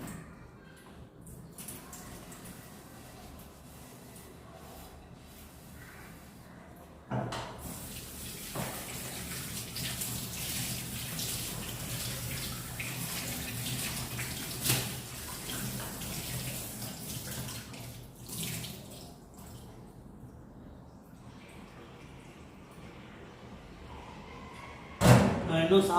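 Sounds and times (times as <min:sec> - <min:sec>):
water running from tap: 0:07.6 - 0:19.6.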